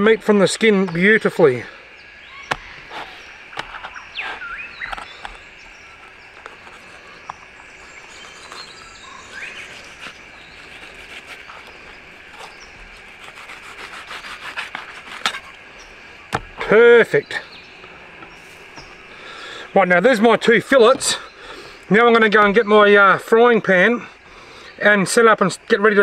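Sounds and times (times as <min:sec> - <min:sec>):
birds calling: 0:00.0 - 0:26.0
steady insect drone: 0:00.0 - 0:26.0
knife scraping cutting board: 0:06.0 - 0:15.6.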